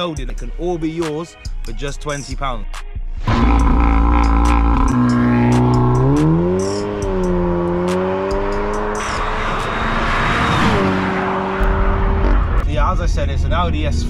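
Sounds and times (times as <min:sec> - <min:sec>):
car engine accelerating hard: 0:03.2 - 0:14.0.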